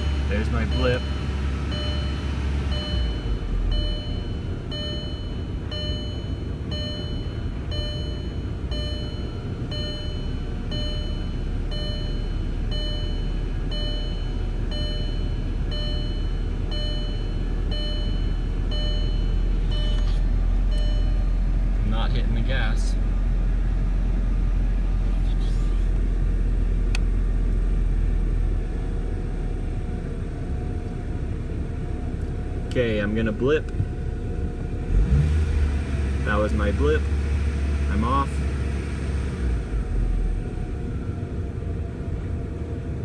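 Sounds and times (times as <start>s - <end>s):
warning chime dinging: 0.0s - 21.5s
car engine rough idle: 0.0s - 43.0s.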